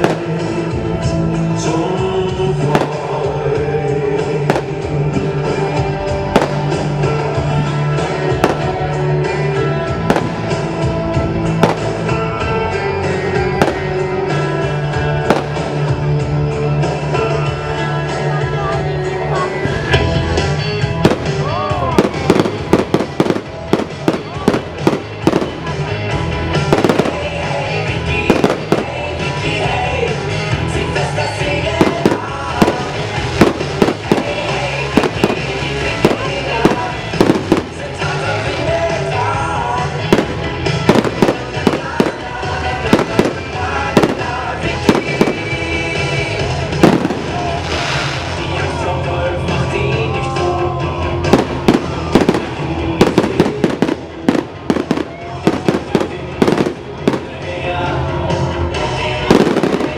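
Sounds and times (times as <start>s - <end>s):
fireworks bangs: 0.0s - 1.1s, 2.6s - 3.6s, 4.4s - 12.6s, 13.6s - 14.5s, 15.2s - 16.2s, 19.6s - 25.9s, 26.5s - 29.9s, 30.5s - 48.8s, 51.2s - 58.0s, 59.2s - 59.9s
show music over loudspeakers: 0.0s - 59.9s.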